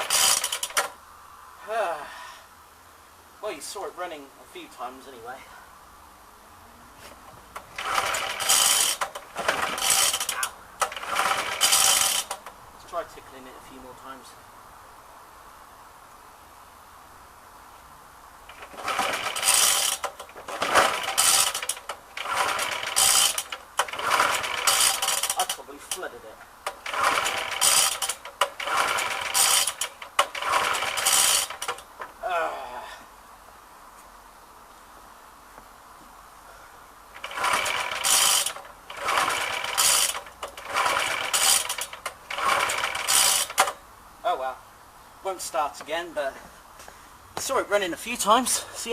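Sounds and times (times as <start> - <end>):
lawnmower engine cranking: 0.0 - 1.0, 7.3 - 13.1, 18.5 - 32.2, 37.1 - 43.8.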